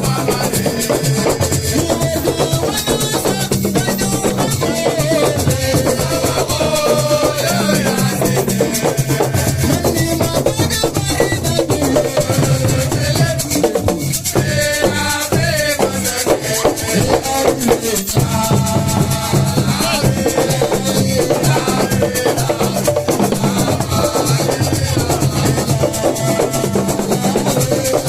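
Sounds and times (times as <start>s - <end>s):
drums and shakers rhythm: 0.0s - 28.0s
voice or melody line: 23.6s - 28.0s.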